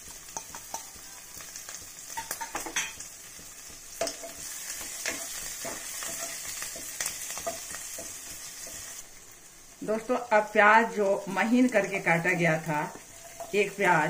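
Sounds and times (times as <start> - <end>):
spices sizzling in hot oil: 0.0 - 14.0
spatula scraping a pan: 4.0 - 9.0, 13.0 - 13.6.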